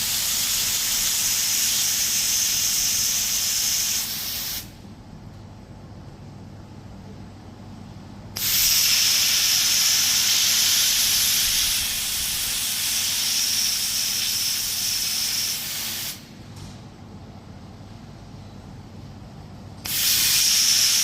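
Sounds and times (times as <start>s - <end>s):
laser welder hissing with whine: 0.0s - 4.8s, 8.4s - 16.3s, 19.8s - 21.0s.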